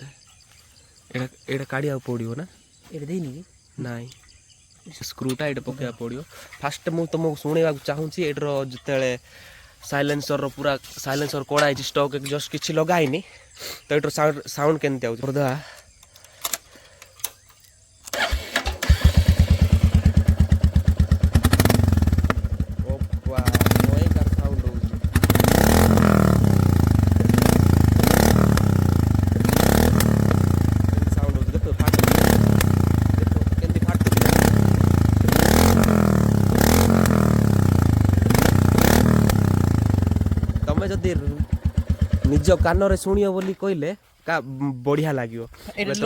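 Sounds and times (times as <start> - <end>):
motorcycle engine cranking: 15.8 - 43.3
motorcycle engine idling: 18.2 - 43.5.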